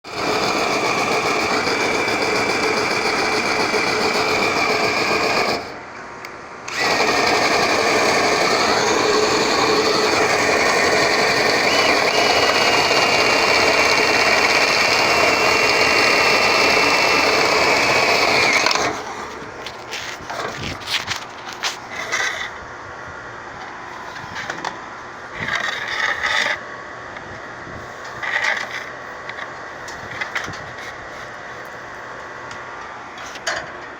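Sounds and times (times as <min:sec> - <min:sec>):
power drill whining: 0:00.1 - 0:05.8, 0:06.7 - 0:19.4.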